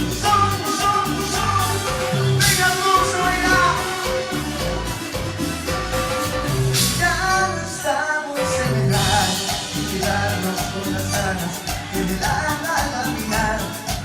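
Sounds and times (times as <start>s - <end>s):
band playing instrumental: 0.0s - 14.0s.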